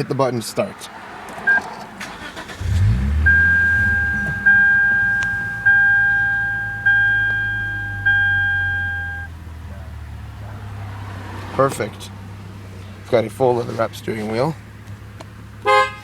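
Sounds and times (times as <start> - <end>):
car engine starting and idling: 1.4 - 15.7
car warning chime: 2.3 - 9.4.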